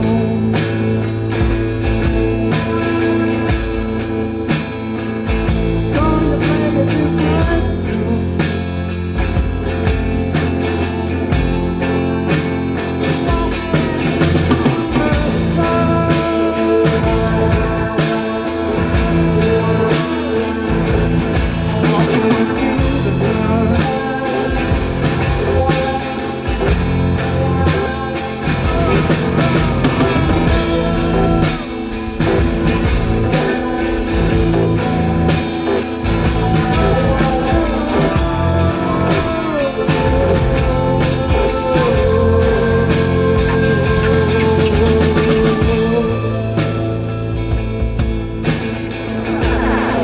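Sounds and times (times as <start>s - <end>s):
drum kit beat: 0.0s - 50.0s
electric guitar sliding notes: 0.0s - 50.0s
live rock band playing: 0.0s - 50.0s.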